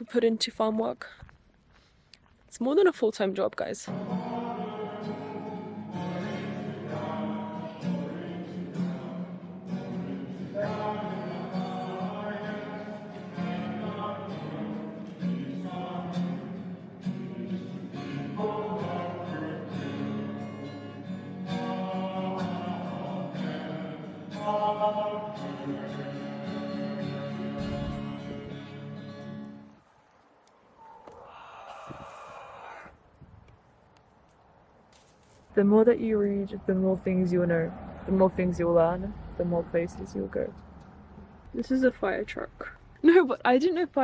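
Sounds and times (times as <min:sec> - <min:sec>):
background music: 0:03.9 - 0:29.8.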